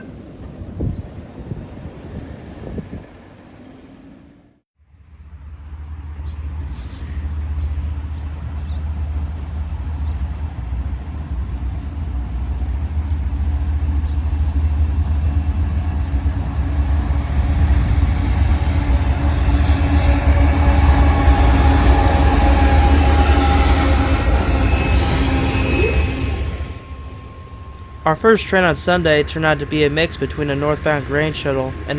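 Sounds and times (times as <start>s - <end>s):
locomotive engine rumble: 5.2s - 31.9s
faint steady tones: 11.1s - 31.9s.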